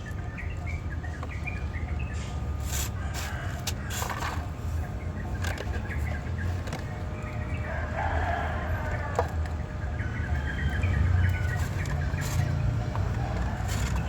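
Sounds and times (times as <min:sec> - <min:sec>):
fowl crowing: 0:07.6 - 0:09.5.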